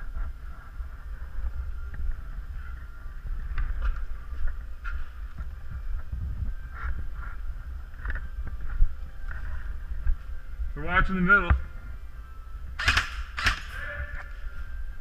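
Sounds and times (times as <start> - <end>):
wind rumble on microphone: 0.0 - 15.0
microphone handling noise: 3.4 - 10.4.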